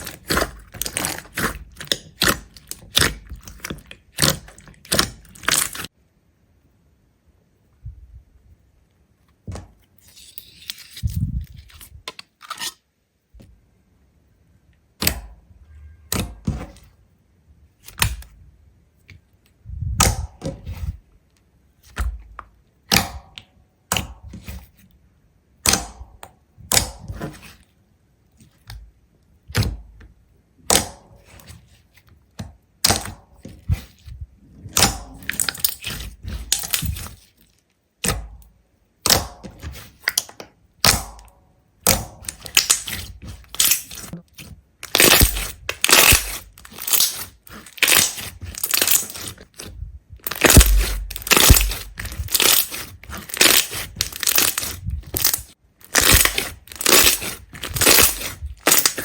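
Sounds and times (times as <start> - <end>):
sharp knocks and thunks: 50.2 - 52.3.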